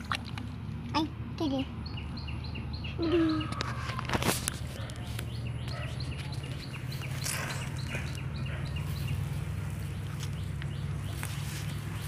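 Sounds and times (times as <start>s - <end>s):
bird chirping: 1.8s - 4.0s, 4.8s - 12.0s.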